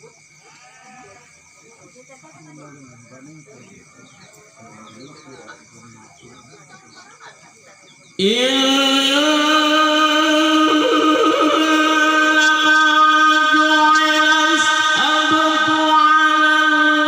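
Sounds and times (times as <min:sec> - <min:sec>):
man chanting melodically: 0:08.2 - 0:17.0.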